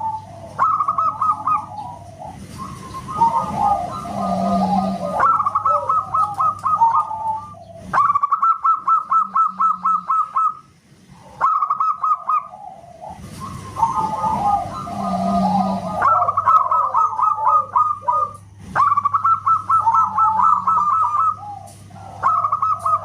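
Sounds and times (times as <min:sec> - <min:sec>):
dove cooing: 0:00.0 - 0:23.0
low dove warble: 0:00.0 - 0:23.0.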